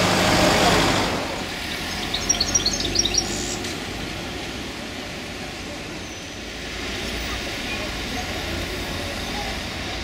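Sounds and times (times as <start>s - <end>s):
street traffic noise: 0.0s - 10.0s
small bird twittering: 1.9s - 3.6s.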